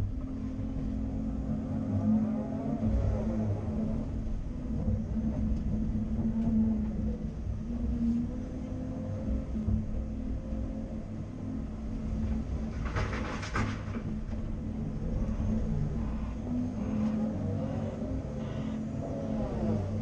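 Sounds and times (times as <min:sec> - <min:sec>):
excavator diesel engine running: 0:00.0 - 0:20.0
harsh clatter: 0:11.9 - 0:18.7.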